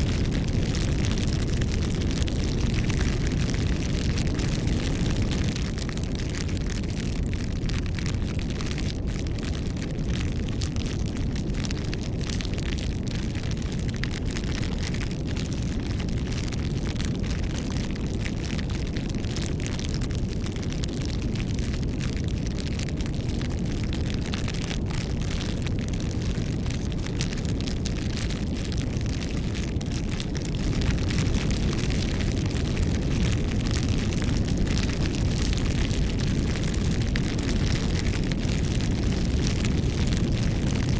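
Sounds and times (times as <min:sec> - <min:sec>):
burning wood crackling and popping: 0:00.0 - 0:40.9
rush of flames: 0:00.0 - 0:40.9.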